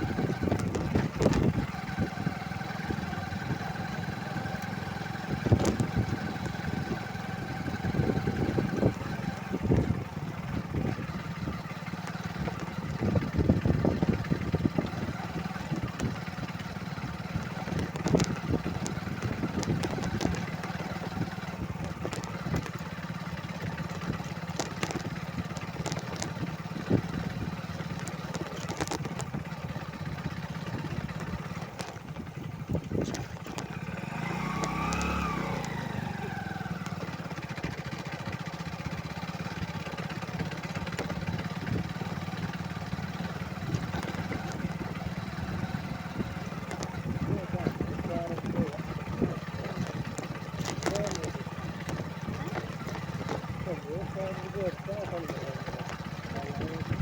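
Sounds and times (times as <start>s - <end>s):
motorcycle engine running: 0.0s - 57.0s
knocks and rattles: 46.4s - 57.0s.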